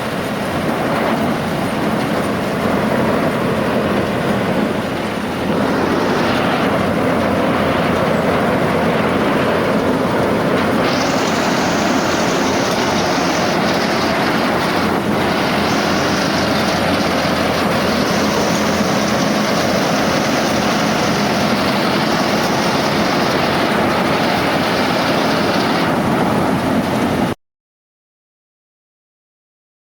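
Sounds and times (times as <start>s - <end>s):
harvesting machinery running: 0.0s - 27.4s
bright hiss: 4.5s - 7.3s, 10.6s - 26.0s.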